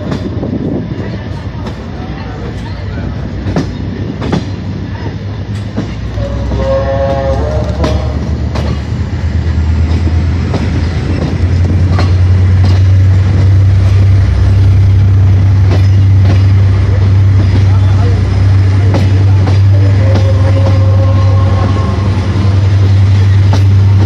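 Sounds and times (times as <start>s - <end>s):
low train rumble: 0.0s - 24.0s
train wheels clicking over rail joints: 0.0s - 24.0s
train horn blast: 6.1s - 8.3s, 19.5s - 22.6s.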